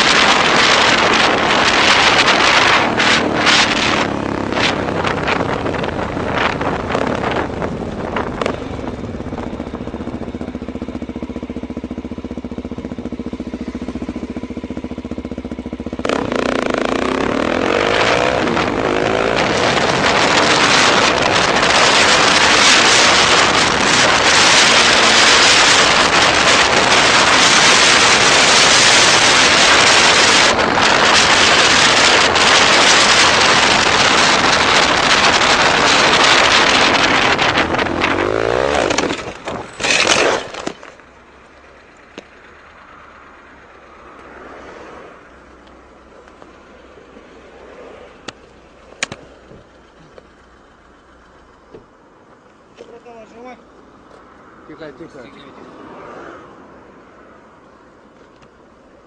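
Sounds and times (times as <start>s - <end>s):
loud wind noise: 0.0s - 10.4s, 15.9s - 40.9s
engine revving: 0.0s - 10.8s, 11.8s - 41.0s
motorcycle engine running: 0.0s - 54.6s.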